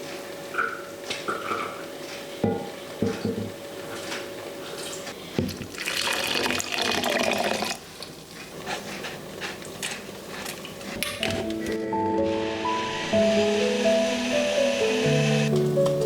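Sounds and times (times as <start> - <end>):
dishes and utensils knocking: 2.4 - 3.6
kitchen tap running: 5.4 - 8.1.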